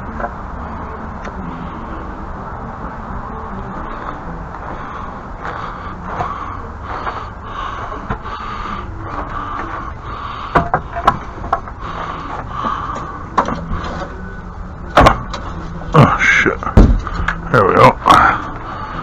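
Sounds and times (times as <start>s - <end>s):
steady rumbling: 0.0s - 19.0s
sharp knocks: 16.8s - 17.1s.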